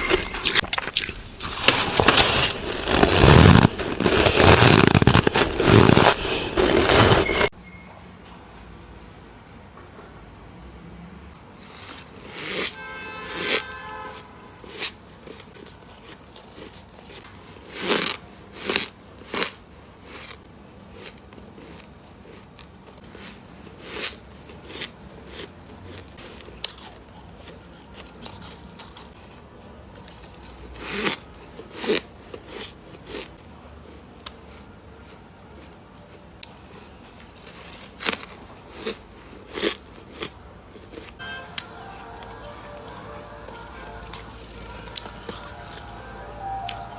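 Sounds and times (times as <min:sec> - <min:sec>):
crisp crunching bites: 0:00.0 - 0:07.5, 0:36.4 - 0:46.9
chewing: 0:14.6 - 0:29.3.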